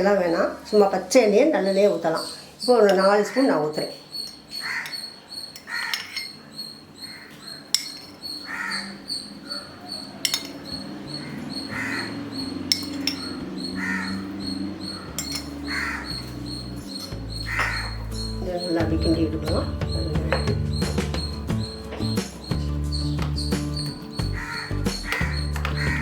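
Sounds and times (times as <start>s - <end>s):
sharp metallic clinks: 4.2s - 6.8s, 7.5s - 25.9s
crow cawing: 4.5s - 7.7s, 8.4s - 18.4s, 24.2s - 26.0s.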